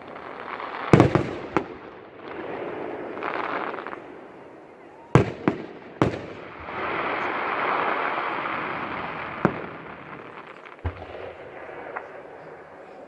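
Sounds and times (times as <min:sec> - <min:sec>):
fireworks crackling hiss: 0:00.0 - 0:13.0
firework bang: 0:05.1 - 0:12.7.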